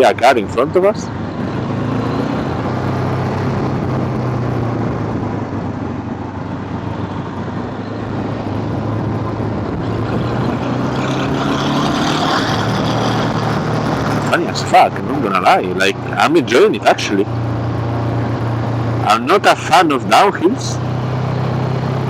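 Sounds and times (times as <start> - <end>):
wind rush on microphone: 1.1 - 15.2.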